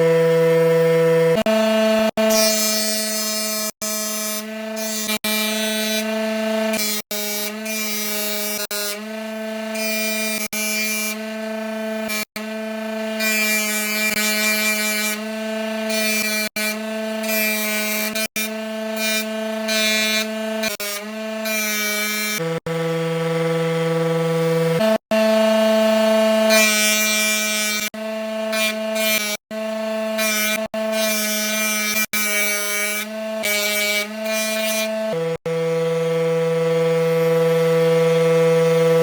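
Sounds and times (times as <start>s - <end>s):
machine motor drone: 0.0s - 2.3s, 22.4s - 26.5s, 34.9s - 39.0s.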